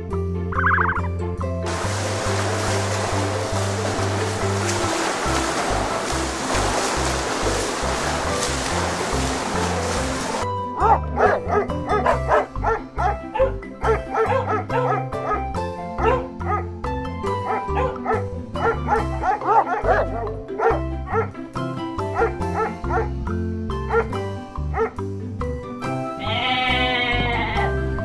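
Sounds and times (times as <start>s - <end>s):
background music with bass line: 0.0s - 28.0s
water noise: 0.5s - 15.4s, 16.0s - 23.2s.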